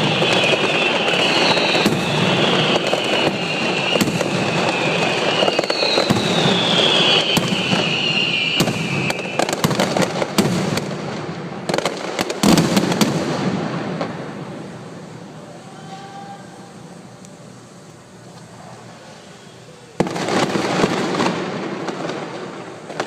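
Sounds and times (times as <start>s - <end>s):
high whistles falling in pitch: 0.0s - 10.1s, 18.9s - 22.2s
fireworks crackling and rumbling: 0.0s - 23.0s.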